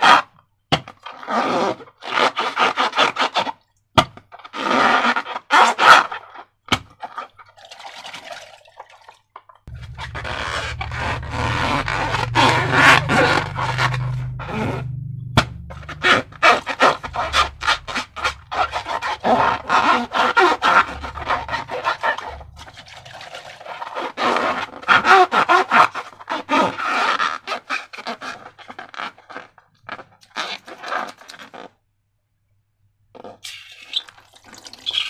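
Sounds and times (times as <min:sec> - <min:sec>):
slime squelching by hand: 0:09.7 - 0:26.0.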